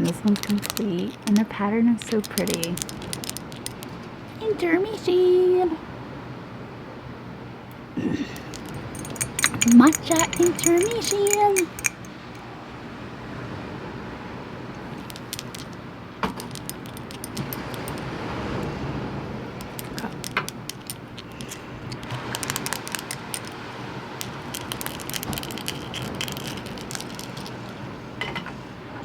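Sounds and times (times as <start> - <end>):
small hard objects clinking: 0.0 - 4.0, 8.4 - 12.4, 14.8 - 18.1, 19.6 - 23.6, 24.2 - 27.9.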